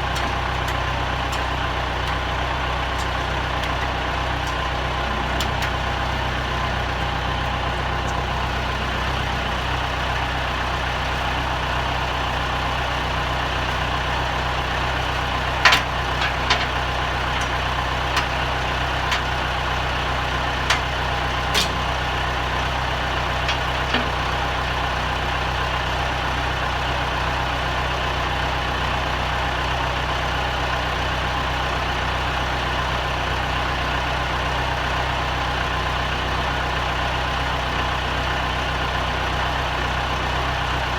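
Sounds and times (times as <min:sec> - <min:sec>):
tractor engine idling: 0:00.0 - 0:40.9
metallic clicks and knocks: 0:15.6 - 0:17.6.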